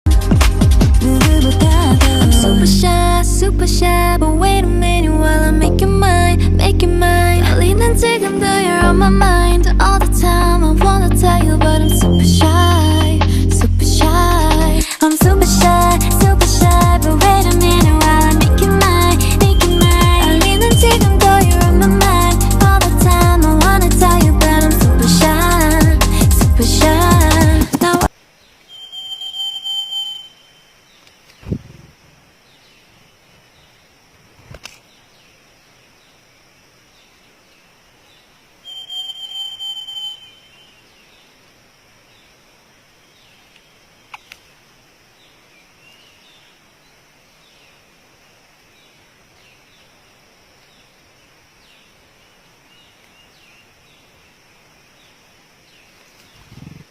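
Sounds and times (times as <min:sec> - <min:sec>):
bird trilling call: 0:19.4 - 0:20.9, 0:28.7 - 0:30.6, 0:38.6 - 0:40.8
faint short bird chirps: 0:28.7 - 0:31.6, 0:38.6 - 0:40.9.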